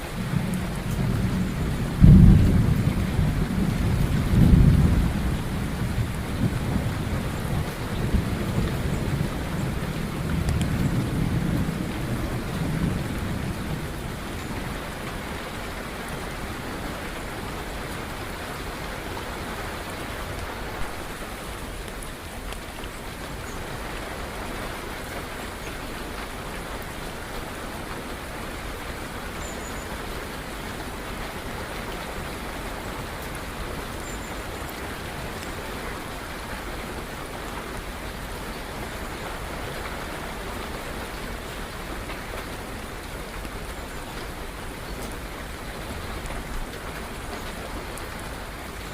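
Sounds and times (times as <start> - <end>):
steady rain falling: 0.0 - 48.9
thunder rolling: 0.2 - 9.7.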